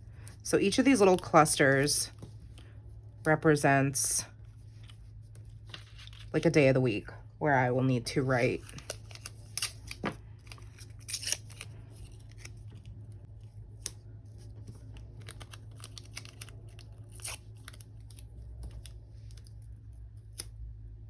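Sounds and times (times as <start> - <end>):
steady low hum: 0.0 - 21.0
paper rustling: 4.5 - 6.5.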